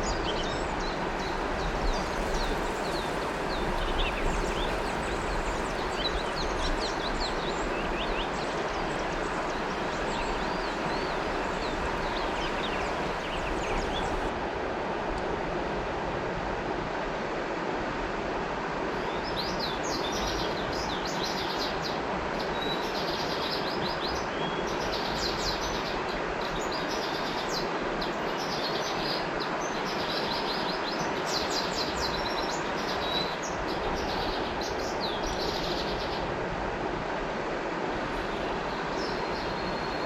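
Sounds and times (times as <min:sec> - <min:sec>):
bird chirping: 0:00.0 - 0:14.3
river water rushing: 0:00.0 - 0:19.0, 0:29.3 - 0:40.0.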